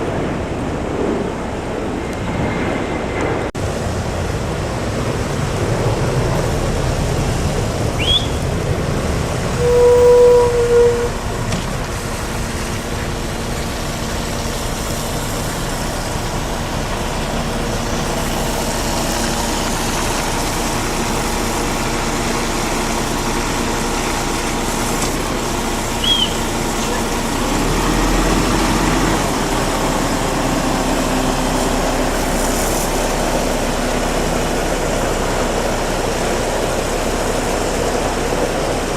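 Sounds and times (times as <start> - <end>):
heavy truck engines running: 0.0 - 38.9
truck horn toot: 9.5 - 11.4.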